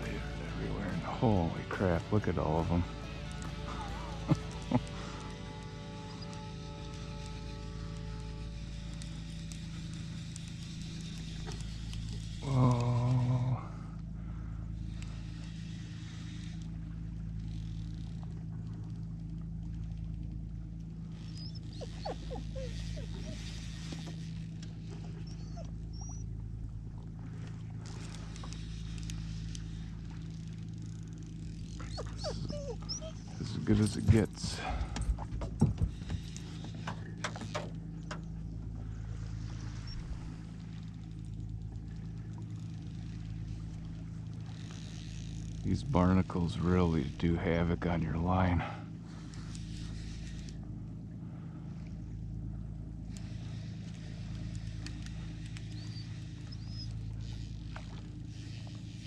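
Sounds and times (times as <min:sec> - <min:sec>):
motor droning: 0:00.0 - 0:59.0.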